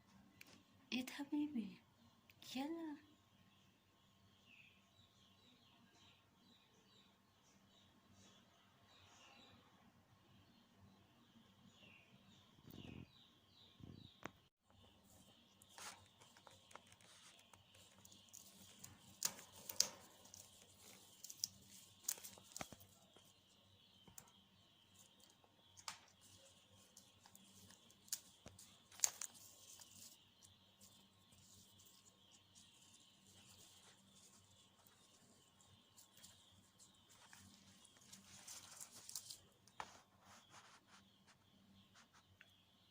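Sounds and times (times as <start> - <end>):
parrot tearing leaves: 16.9 - 23.0, 25.8 - 30.2, 37.1 - 39.4.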